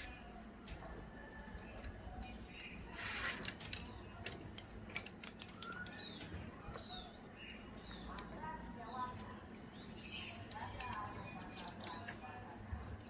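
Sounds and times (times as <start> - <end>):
doves chirping: 0.0 - 13.0
light rustling and clicks: 1.5 - 6.9.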